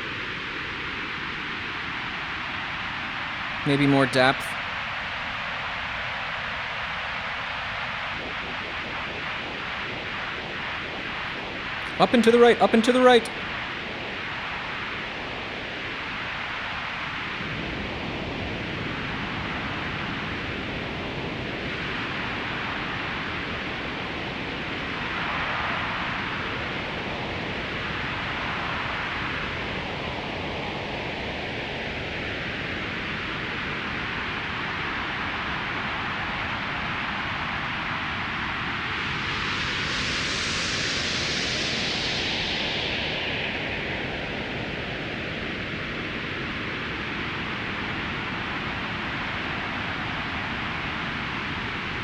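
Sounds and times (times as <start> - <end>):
synthesized wind noise sweeping: 0.0 - 34.0, 34.6 - 52.0.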